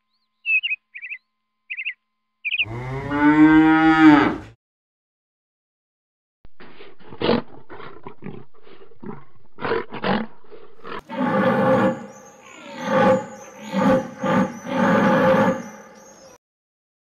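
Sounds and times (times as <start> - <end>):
high chirps: 0.0 - 2.7
lion roaring: 6.8 - 16.3.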